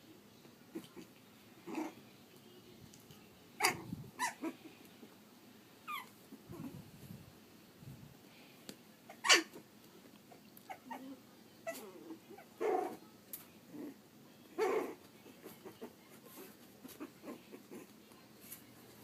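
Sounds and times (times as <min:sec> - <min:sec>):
puppy crying loudly: 0:03.6 - 0:04.6, 0:09.1 - 0:09.6.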